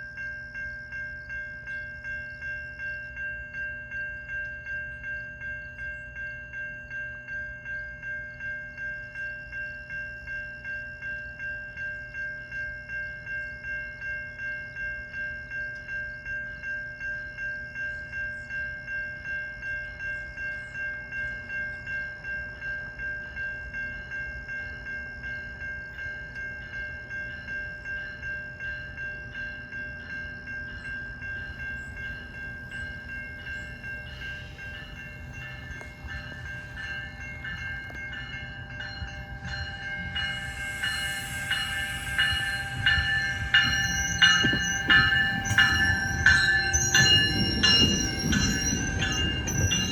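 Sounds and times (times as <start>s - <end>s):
level-crossing warning bell: 0.0s - 49.9s
train rumble: 0.0s - 49.9s.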